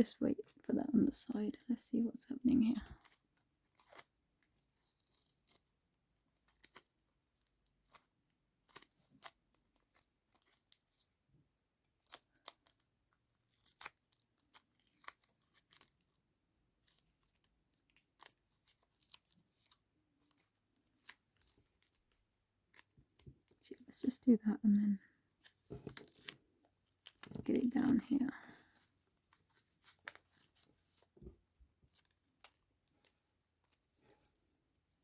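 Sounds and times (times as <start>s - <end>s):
paper and tape rustling: 25.4s - 34.4s.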